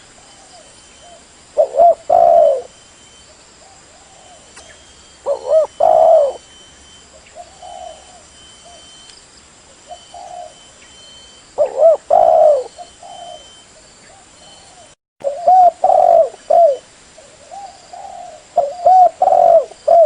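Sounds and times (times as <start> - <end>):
dove cooing: 0.2 - 2.8, 3.6 - 6.5, 7.1 - 9.0, 9.8 - 20.0.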